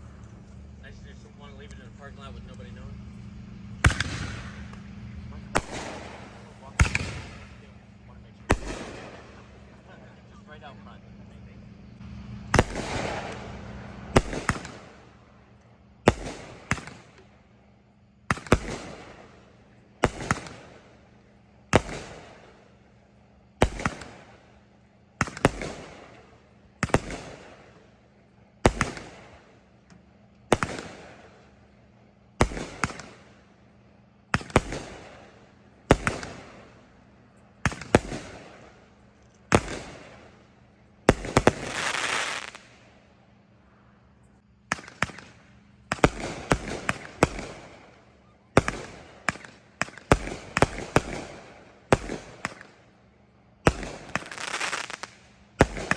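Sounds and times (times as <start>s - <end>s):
fireworks crackling: 0.0s - 17.5s, 18.1s - 22.9s, 23.5s - 43.3s, 44.4s - 55.9s
fireworks popping and banging: 3.8s - 10.8s, 12.5s - 15.0s, 16.1s - 17.3s, 18.3s - 19.4s, 20.0s - 20.9s, 21.7s - 22.5s, 23.6s - 24.3s, 25.2s - 27.8s, 28.6s - 31.4s, 32.4s - 33.4s, 34.4s - 36.8s, 37.6s - 40.4s, 41.1s - 42.8s, 44.7s - 48.0s, 48.6s - 52.8s, 53.7s - 55.9s.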